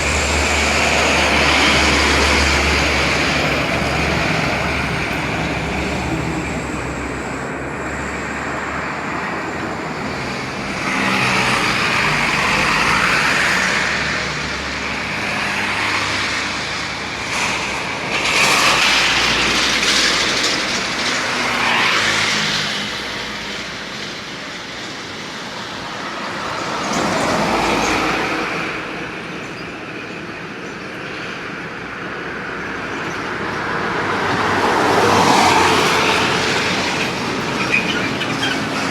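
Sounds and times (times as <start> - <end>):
vehicles passing: 0.0 - 38.9.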